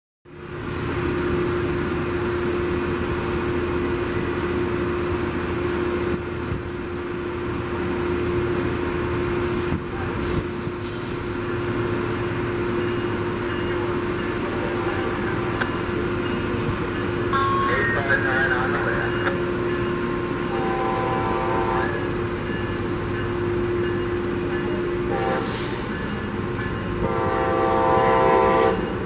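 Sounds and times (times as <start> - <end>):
diesel train idling: 0.3 - 29.0.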